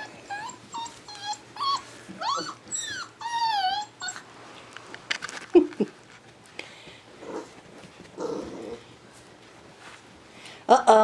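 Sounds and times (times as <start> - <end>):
puppies whimpering and yipping: 0.0 - 4.3.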